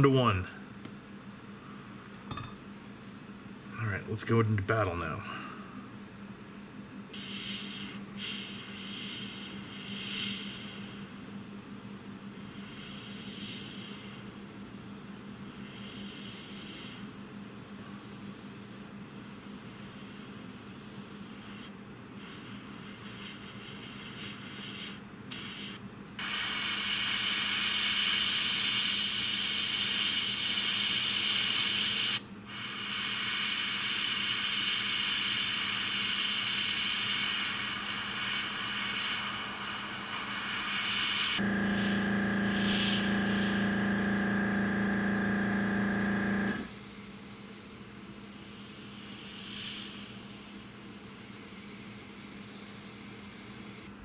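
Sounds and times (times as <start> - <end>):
airbrush spraying hiss: 7.2 - 14.4, 15.0 - 53.9
compressor motor humming: 41.2 - 46.7.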